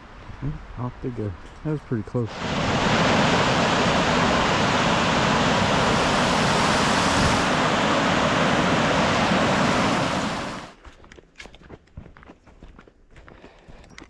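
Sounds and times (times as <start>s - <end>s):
creek water rushing: 2.3s - 10.8s.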